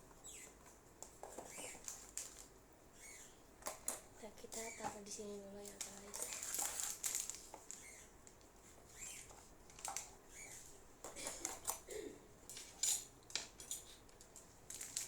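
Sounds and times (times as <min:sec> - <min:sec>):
scratchy rustles: 0:04.4 - 0:11.7.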